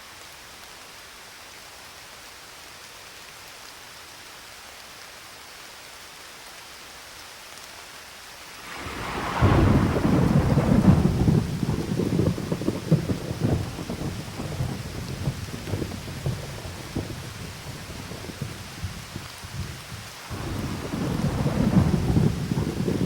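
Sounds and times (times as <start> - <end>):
steady rain hissing: 0.0 - 23.0
thunder rumbling: 8.6 - 23.0.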